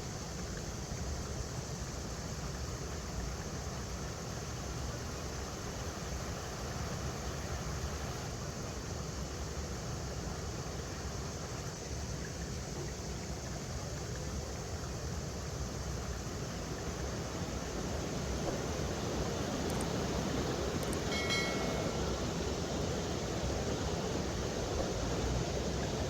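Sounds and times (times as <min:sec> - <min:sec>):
river water over rocks: 0:15.6 - 0:26.0.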